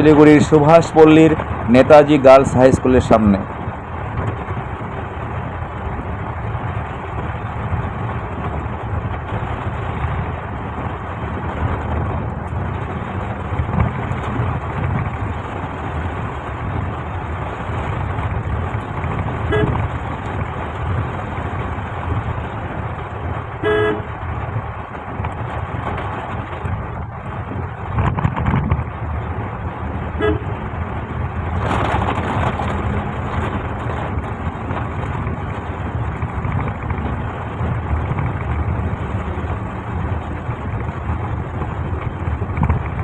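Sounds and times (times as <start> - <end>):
city traffic noise: 0.0 - 43.0
long horn blast: 19.4 - 19.8, 23.6 - 24.2, 30.1 - 30.6
vehicle horn toot: 19.5 - 19.8, 23.6 - 24.1, 30.2 - 30.6.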